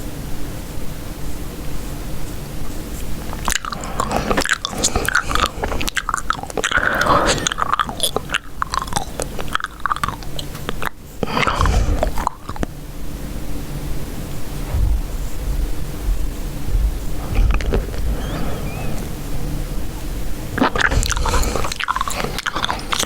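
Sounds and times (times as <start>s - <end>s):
low background hum: 0.0s - 23.0s
gum chewing clicks and smacks: 3.2s - 12.8s, 14.8s - 19.2s, 20.4s - 23.0s.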